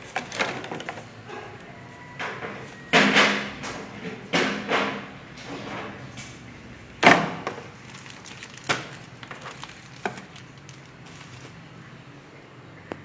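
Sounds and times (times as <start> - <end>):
hard objects knocking and clicking: 7.0 - 11.5.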